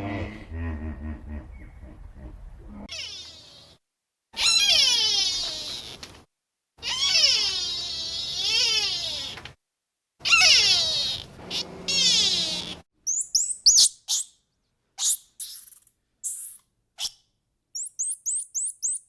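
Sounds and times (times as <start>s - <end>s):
low grunting: 0.0s - 2.9s
animal wailing calls: 0.0s - 3.8s, 4.4s - 6.0s, 6.8s - 9.4s, 10.2s - 12.8s.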